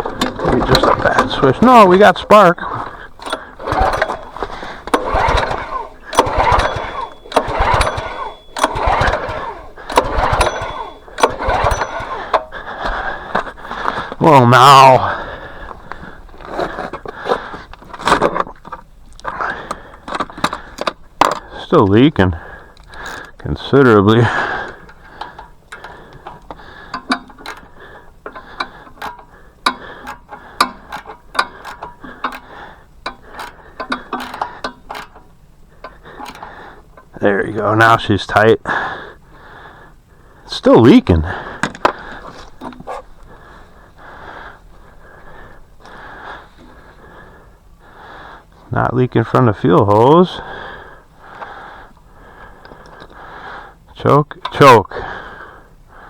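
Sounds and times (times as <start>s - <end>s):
hand tool clicking and scraping metal: 0.0s - 22.0s, 24.2s - 37.2s
small engine pull start whirr: 0.0s - 39.8s, 40.5s - 48.0s.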